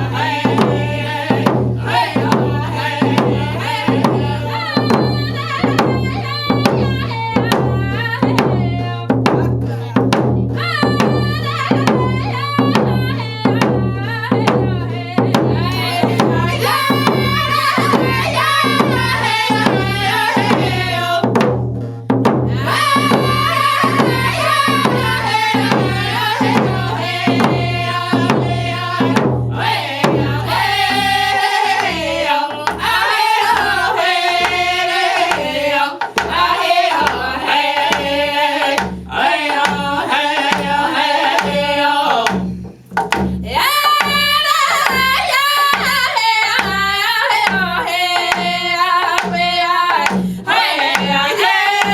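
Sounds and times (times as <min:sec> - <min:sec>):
group of singers chanting: 0:00.0 - 0:21.4, 0:22.4 - 0:42.5, 0:43.4 - 0:51.9
hand drums beating: 0:00.0 - 0:51.9.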